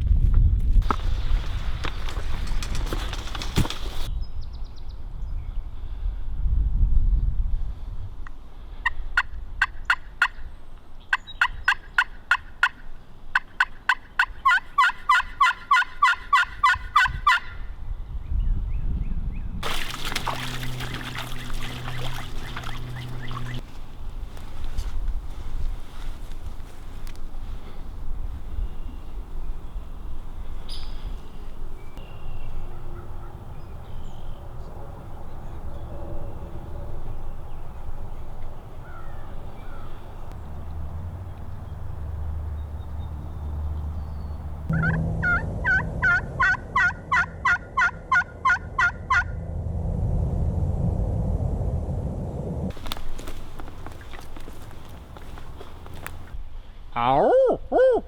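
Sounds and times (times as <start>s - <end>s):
wind rumbling on microphone: 0.0s - 9.9s, 16.5s - 56.9s
turkey yelps: 13.9s - 17.5s, 44.8s - 49.2s, 57.2s - 58.0s.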